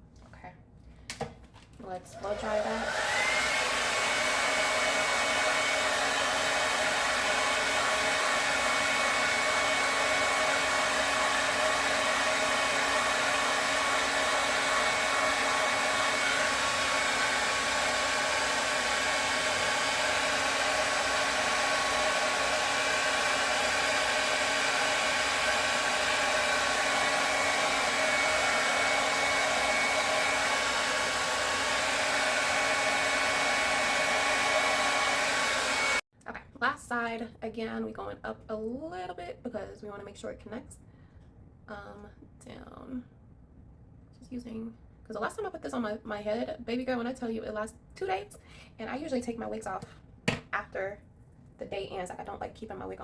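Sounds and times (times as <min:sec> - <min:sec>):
hair dryer running: 0:02.0 - 0:36.0.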